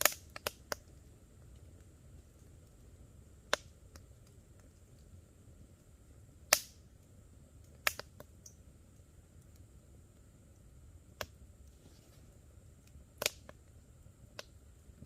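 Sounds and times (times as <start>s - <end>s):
sharp fire pops: 0.0s - 1.9s, 3.4s - 5.0s, 6.4s - 7.0s, 7.6s - 8.6s, 12.9s - 13.6s
campfire crackling: 0.0s - 15.0s.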